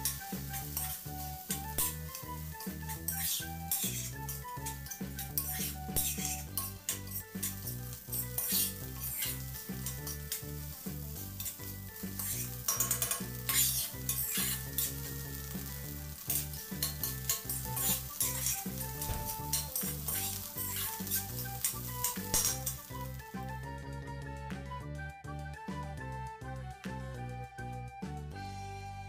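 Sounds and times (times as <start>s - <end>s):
rice sizzling in hot oil: 0.0s - 23.6s
spatula scraping iron pan: 3.0s - 10.2s, 11.4s - 14.9s, 16.2s - 22.7s.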